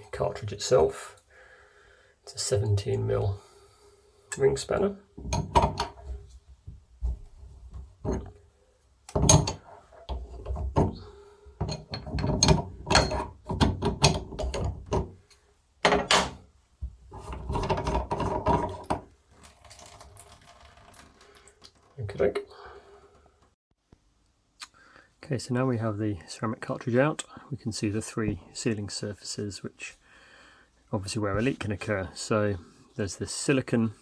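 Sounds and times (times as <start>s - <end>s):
spanner metal clicks and knocks: 11.6s - 15.1s.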